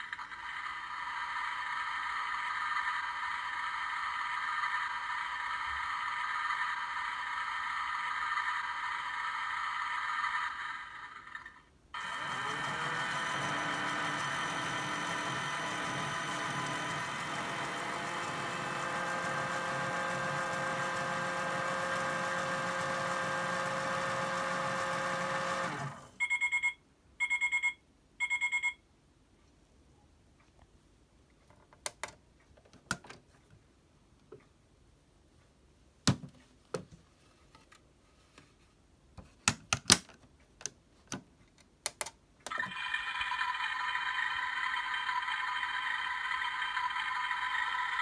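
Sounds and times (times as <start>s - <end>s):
small motor whining: 12.0s - 26.2s.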